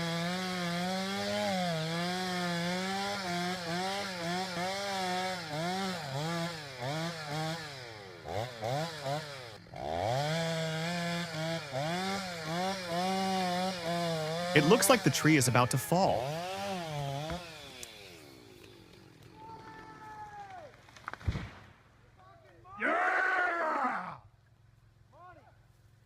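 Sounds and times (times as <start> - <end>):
chainsaw cutting tree trunk: 0.0 - 19.5.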